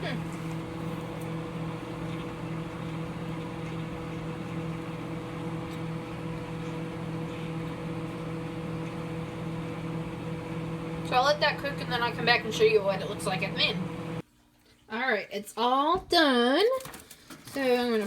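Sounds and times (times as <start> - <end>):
microwave oven humming: 0.0 - 14.3.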